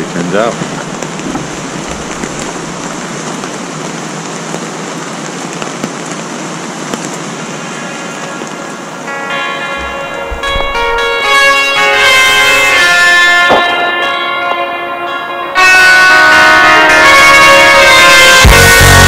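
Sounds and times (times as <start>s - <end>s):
raindrops ticking: 0.0s - 11.7s
steady rain falling: 0.0s - 19.0s
guitar music: 9.0s - 19.0s.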